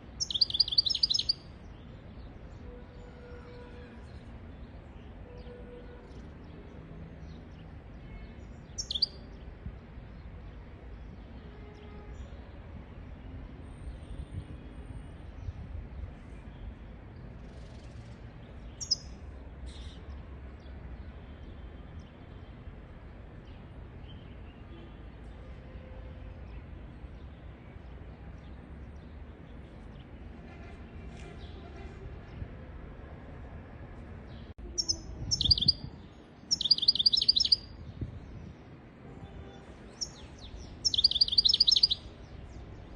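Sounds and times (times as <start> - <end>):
goldfinch chirping: 0.2 - 1.4, 8.8 - 9.2, 18.8 - 19.1, 34.8 - 35.8, 36.5 - 37.7, 40.0 - 42.1
sharp falling bird calls: 36.5 - 37.6, 40.8 - 42.0.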